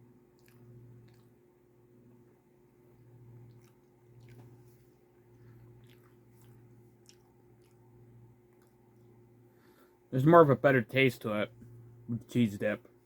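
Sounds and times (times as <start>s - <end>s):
faint chewing: 0.2s - 1.6s, 3.0s - 9.9s
wet mouth clicks: 0.4s - 1.4s, 5.4s - 7.9s.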